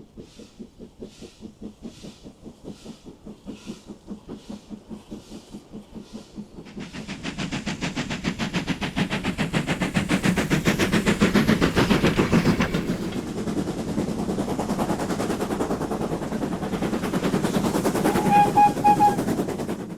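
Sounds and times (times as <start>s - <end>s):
steam locomotive chuffing: 0.0s - 19.9s
short pulsed high tone: 18.0s - 19.2s.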